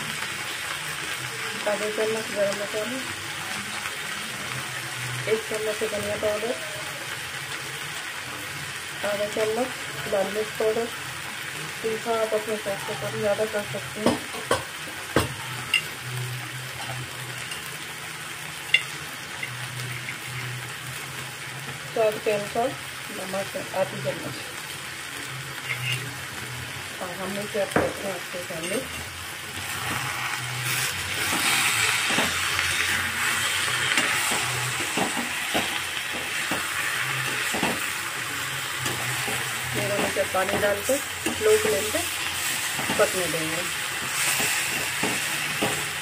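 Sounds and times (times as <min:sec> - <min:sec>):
food sizzling in a pan: 0:00.0 - 0:46.0
spatula scraping a pan: 0:25.6 - 0:26.1.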